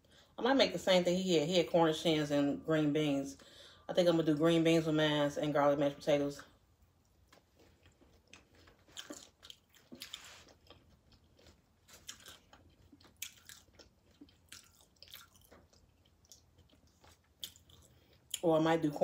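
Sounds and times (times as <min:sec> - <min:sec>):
chewing and crunching chips: 0:06.8 - 0:18.9.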